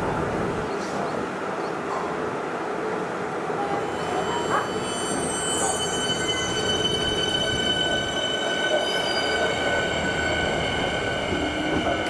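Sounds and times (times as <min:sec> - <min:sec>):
electric train rumbling: 0:00.0 - 0:12.0
high-pitched wheel squeal: 0:03.7 - 0:12.0.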